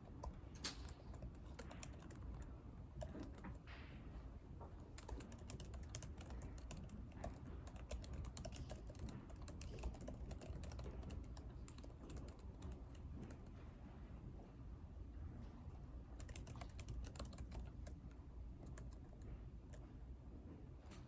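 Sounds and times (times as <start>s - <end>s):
low room hum: 0.0s - 21.0s
keyboard typing clicks: 0.2s - 2.4s, 3.0s - 3.6s, 5.0s - 13.5s, 16.2s - 18.0s.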